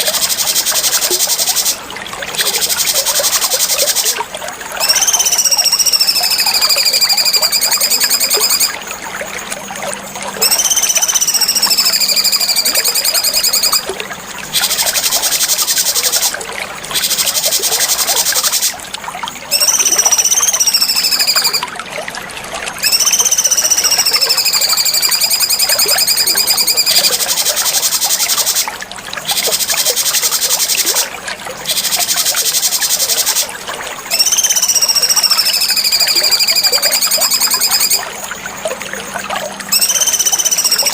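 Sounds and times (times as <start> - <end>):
bird singing whistles and trills: 4.8 - 8.9, 10.4 - 13.9, 14.5 - 18.7, 19.5 - 21.7, 22.8 - 33.5, 34.1 - 38.1, 39.7 - 40.9.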